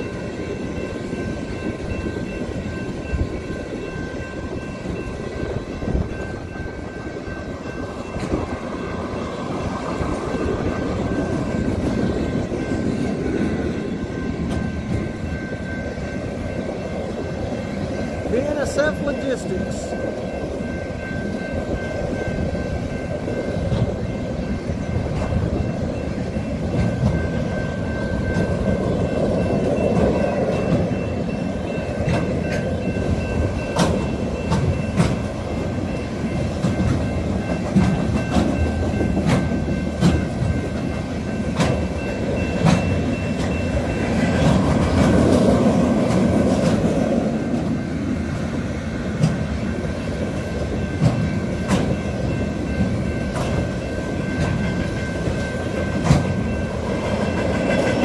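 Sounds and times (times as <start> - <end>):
steel wheels rumbling on rail: 0.0 - 58.0
wheels clicking over rail joints: 20.1 - 58.0.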